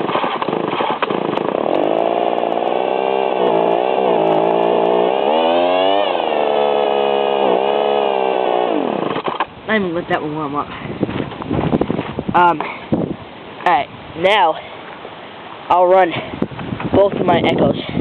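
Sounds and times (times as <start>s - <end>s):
leaf blower engine revving: 0.0s - 9.5s.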